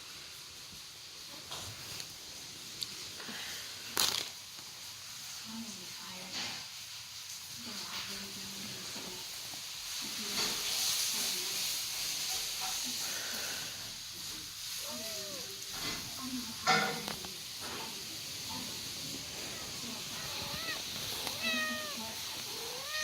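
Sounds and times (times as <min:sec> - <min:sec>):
steady hiss: 0:00.0 - 0:23.0
kitten mewing: 0:14.8 - 0:16.1, 0:19.0 - 0:23.0.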